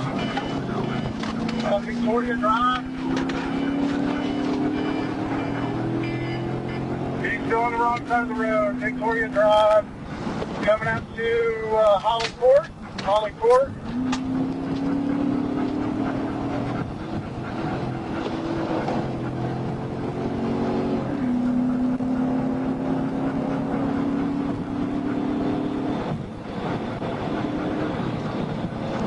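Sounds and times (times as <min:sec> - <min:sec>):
car engine running hard: 0:00.0 - 0:29.0
road and wind noise: 0:00.0 - 0:29.0.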